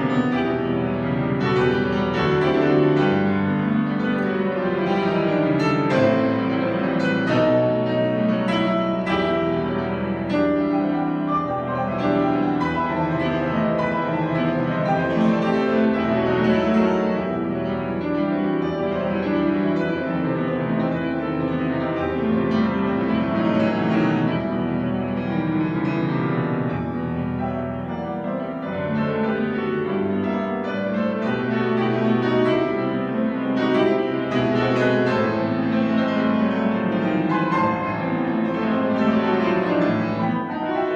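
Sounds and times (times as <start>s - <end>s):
solo piano classical piece: 0.0s - 40.9s.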